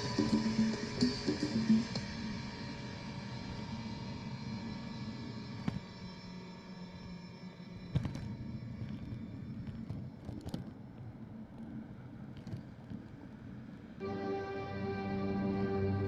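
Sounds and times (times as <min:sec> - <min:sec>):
music: 0:00.0 - 0:04.5, 0:14.0 - 0:16.0.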